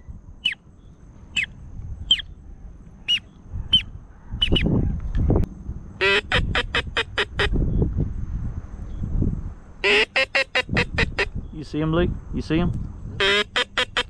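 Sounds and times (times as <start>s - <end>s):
duck call high peeps: 3.1s - 4.7s, 6.0s - 7.6s, 9.8s - 11.4s, 13.2s - 14.0s
nasal duck quacks: 6.0s - 7.6s, 9.8s - 11.3s, 13.2s - 14.0s.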